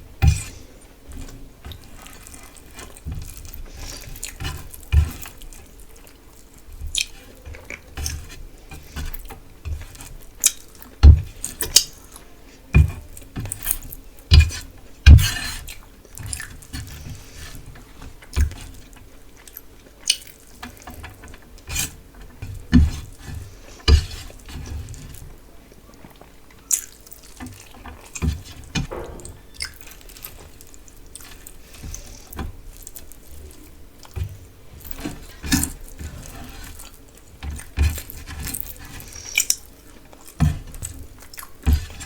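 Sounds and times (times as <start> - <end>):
wet chewing: 0.3 - 14.7, 18.2 - 22.7, 25.9 - 42.0
mouth smacks and light knocks: 27.5 - 33.2.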